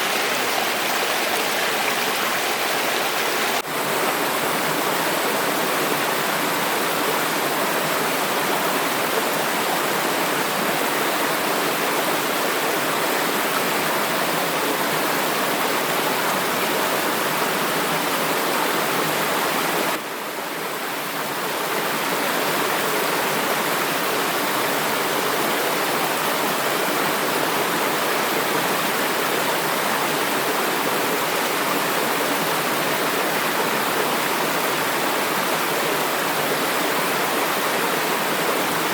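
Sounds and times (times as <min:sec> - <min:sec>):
flowing water rushing: 0:00.0 - 0:38.9.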